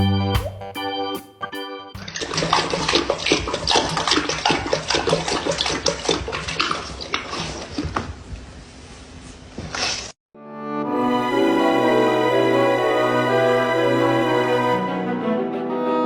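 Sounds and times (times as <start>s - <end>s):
water splashing and sloshing: 2.0s - 8.5s.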